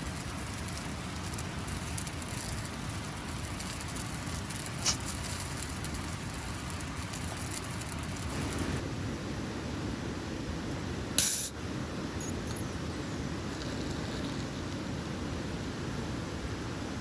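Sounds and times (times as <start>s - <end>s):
steady rain falling: 0.0s - 8.8s.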